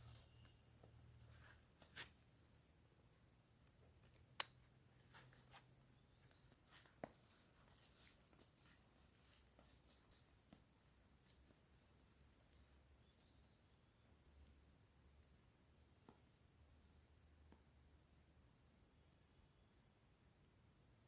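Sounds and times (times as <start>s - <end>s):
insects chirring: 0.0s - 21.0s
sharp clicks: 4.1s - 4.7s.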